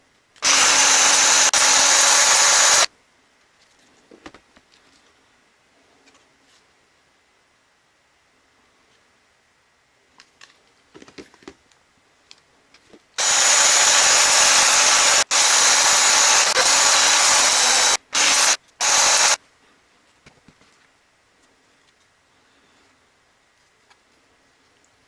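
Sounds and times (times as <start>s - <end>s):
pressurised air jet hissing: 0.4s - 2.9s, 13.2s - 19.4s.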